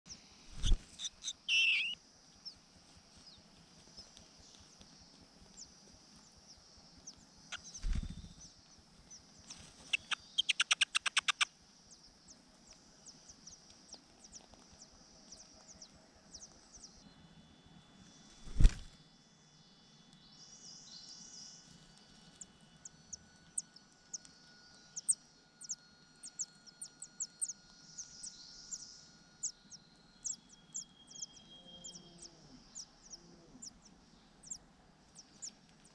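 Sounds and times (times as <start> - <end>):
faint high chirping: 0.1 - 35.9
nestlings chirping: 0.6 - 2.6, 5.5 - 16.9, 25.0 - 35.9
bird thumping and rustling: 18.4 - 19.0.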